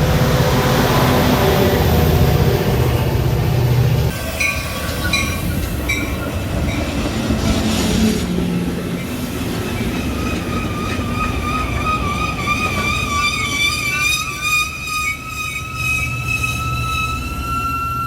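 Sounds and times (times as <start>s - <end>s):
train wheels squealing: 4.1s - 8.2s, 8.9s - 18.0s.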